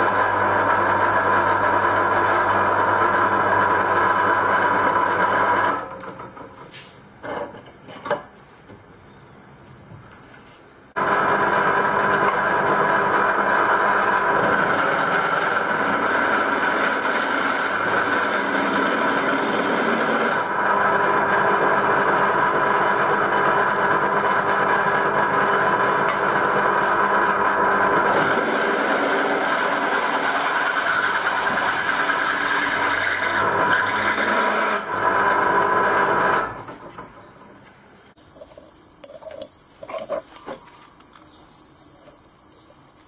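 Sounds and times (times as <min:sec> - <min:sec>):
electric power tool whining: 0:00.0 - 0:06.1, 0:11.0 - 0:37.1.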